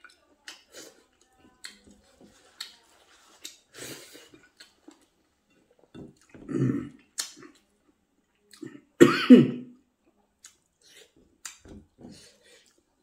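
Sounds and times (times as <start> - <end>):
person chewing with mouth clicks: 0.0 - 5.1, 7.0 - 8.8, 10.4 - 11.7.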